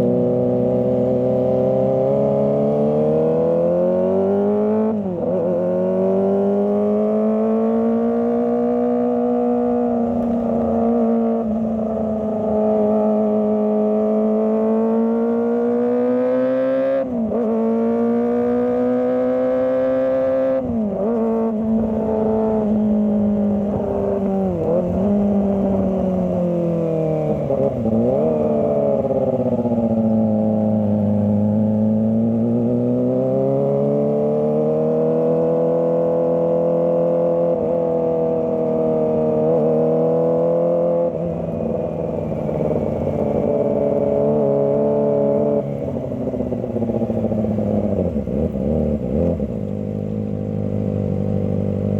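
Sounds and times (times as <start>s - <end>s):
motorcycle engine at high revs: 0.0s - 51.9s.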